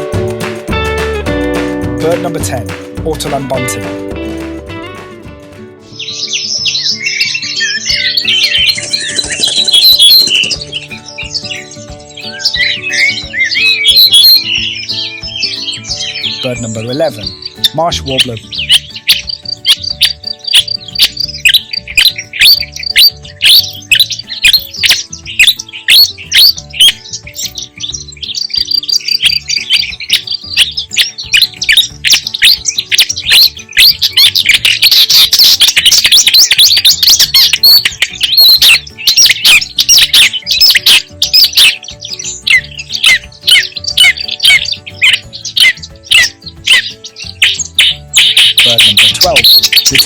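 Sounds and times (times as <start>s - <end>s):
warbler singing: 5.8s - 50.0s.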